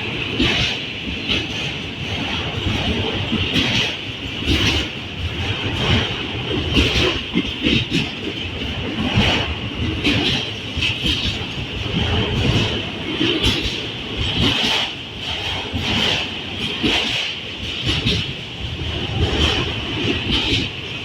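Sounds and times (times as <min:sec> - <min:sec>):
train wheels knocking on rail joints: 0:00.0 - 0:21.0.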